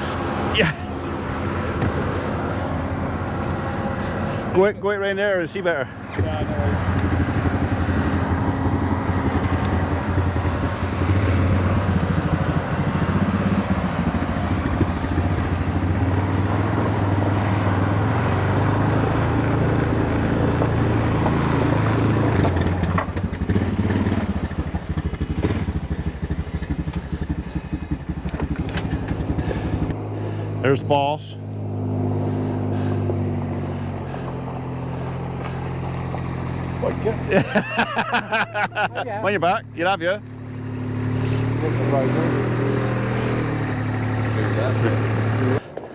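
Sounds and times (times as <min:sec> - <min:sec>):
combine harvester diesel engine: 0:00.0 - 0:45.9.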